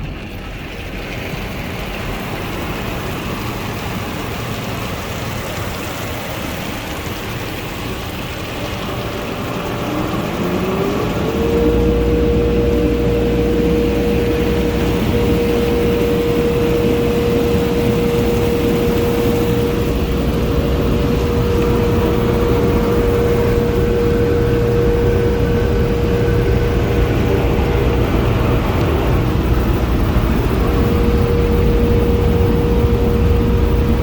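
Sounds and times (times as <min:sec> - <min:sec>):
dryer blowers whining and rushing: 0:00.0 - 0:34.0.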